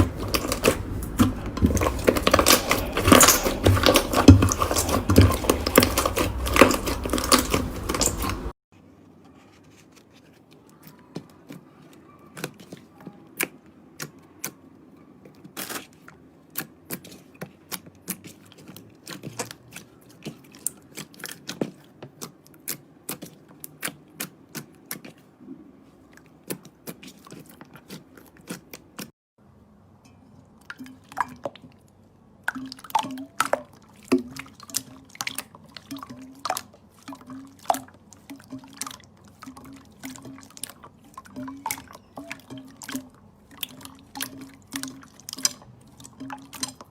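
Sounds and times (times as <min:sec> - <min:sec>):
slime crackling: 0:00.0 - 0:08.6.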